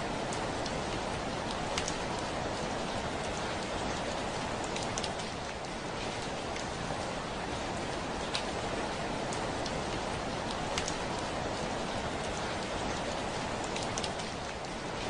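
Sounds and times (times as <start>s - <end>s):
heavy rain on a window: 0.0s - 15.0s.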